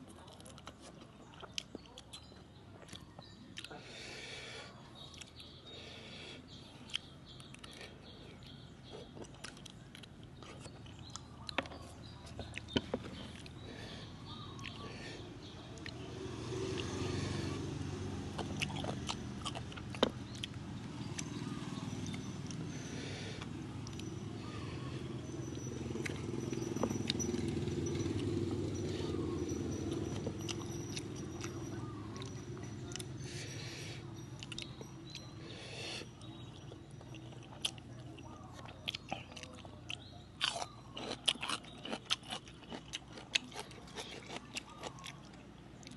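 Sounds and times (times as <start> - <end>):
person chewing food: 0.0 - 45.9
small crunches: 38.6 - 45.9.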